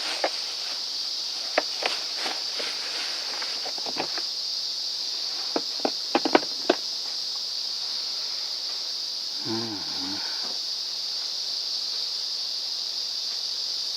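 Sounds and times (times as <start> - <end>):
clicks and knocks of parts: 5.6 - 6.8.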